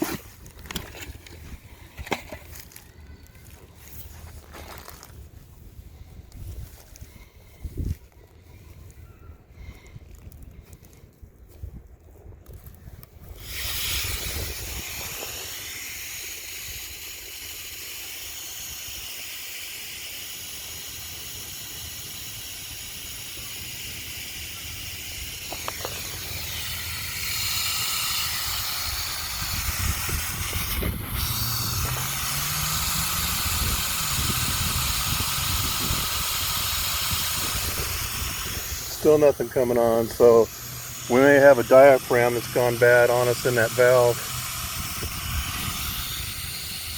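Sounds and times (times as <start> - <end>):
sprinkler water hissing: 13.2 - 46.9.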